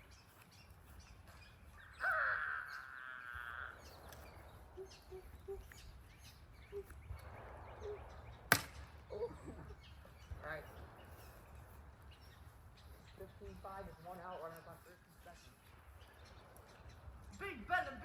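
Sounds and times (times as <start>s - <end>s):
bird chirps: 0.0s - 18.0s
loud wavering cry: 1.9s - 7.0s, 7.6s - 8.3s
plastic bat hitting ball: 8.5s - 8.8s.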